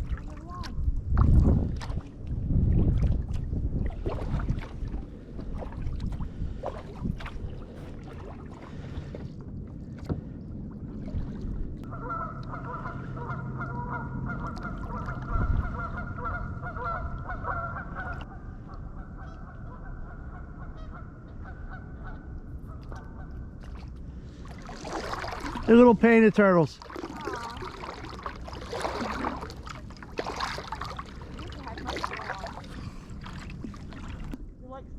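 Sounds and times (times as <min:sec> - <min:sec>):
geese honking: 0:11.8 - 0:18.4, 0:19.0 - 0:23.4.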